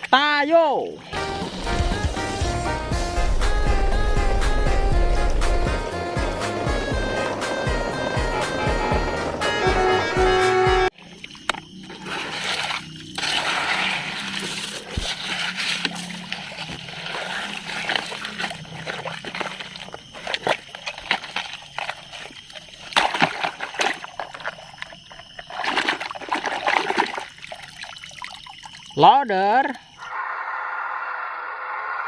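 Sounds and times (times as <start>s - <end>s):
water splashing and sloshing: 0.7s - 29.0s.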